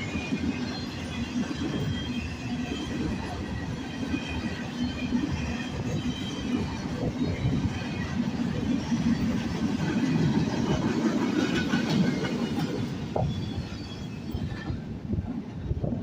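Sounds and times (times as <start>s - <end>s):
train wheels rumbling on rail: 0.0s - 16.0s
high wheel squeal: 12.1s - 14.8s.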